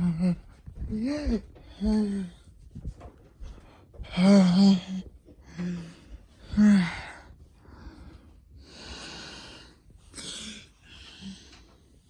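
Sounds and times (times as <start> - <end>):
person breathing heavily: 3.4 - 12.0.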